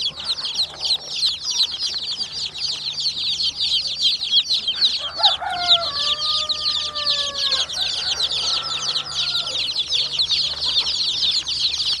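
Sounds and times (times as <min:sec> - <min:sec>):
chicks peeping: 0:00.0 - 0:12.0
chicken call: 0:04.8 - 0:09.7.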